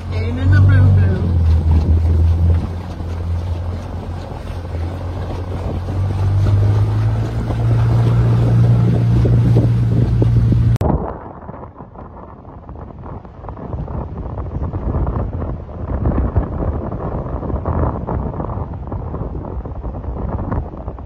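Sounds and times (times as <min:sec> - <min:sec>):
boat motor running: 0:00.0 - 0:11.2
water noise: 0:00.0 - 0:21.0
wind on microphone: 0:00.0 - 0:21.0.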